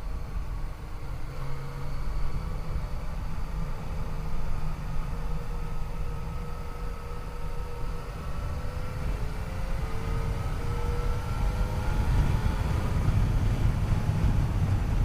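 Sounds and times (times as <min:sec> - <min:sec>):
wind on microphone: 0:09.9 - 0:15.0.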